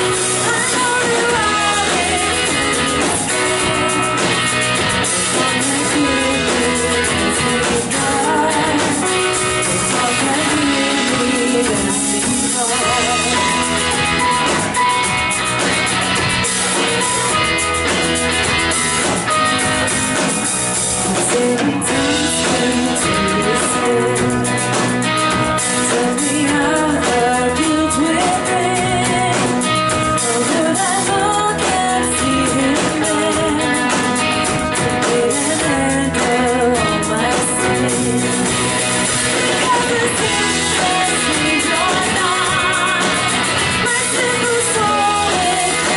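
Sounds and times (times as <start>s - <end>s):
voices singing: 0.0s - 14.9s, 35.0s - 45.9s
drum kit: 0.0s - 45.9s
guitar: 0.0s - 45.9s.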